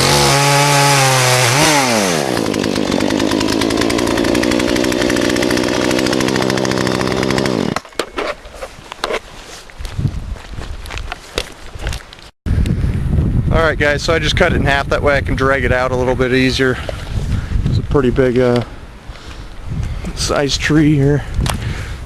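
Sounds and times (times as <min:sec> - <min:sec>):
chainsaw cutting wood: 0:00.0 - 0:09.2.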